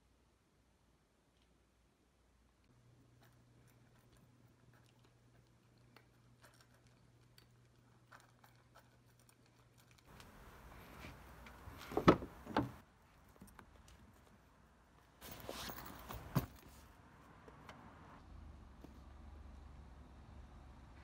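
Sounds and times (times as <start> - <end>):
cats crunching dry kibble: 3.0 - 11.9
rustling: 3.2 - 17.0
thumps: 10.8 - 12.8.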